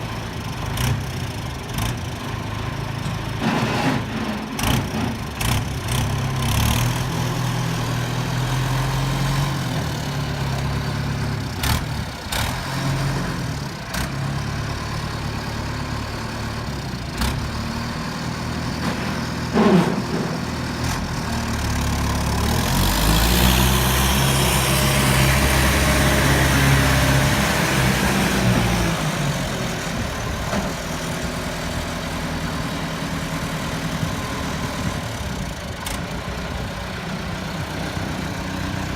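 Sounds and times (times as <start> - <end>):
truck engine running: 7.0 - 38.9.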